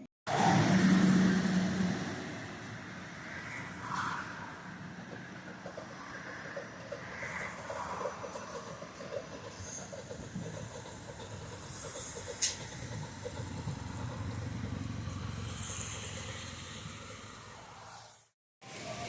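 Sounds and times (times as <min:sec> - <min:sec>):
vehicle passing: 0:00.3 - 0:09.1, 0:12.6 - 0:19.0.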